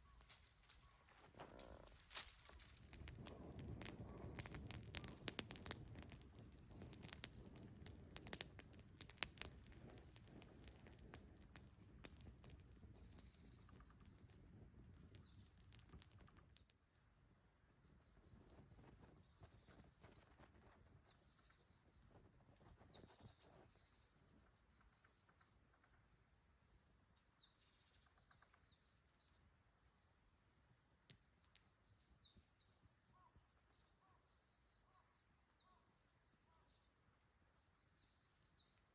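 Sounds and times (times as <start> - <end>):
high insect chirring: 0.0 - 14.3
sharp clicks and pops: 0.0 - 16.8.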